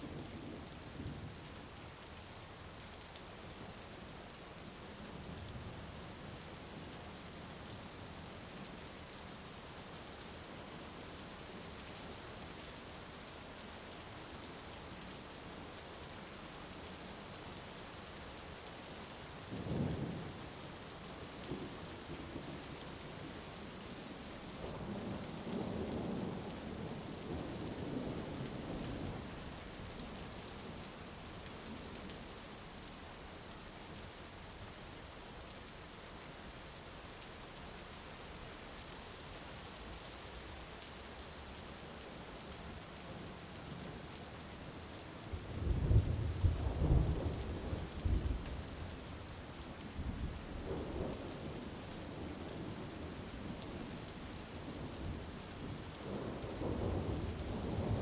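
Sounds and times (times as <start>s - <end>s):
heavy rain: 0.0s - 58.0s
rumble of thunder: 45.4s - 48.7s, 55.7s - 58.0s.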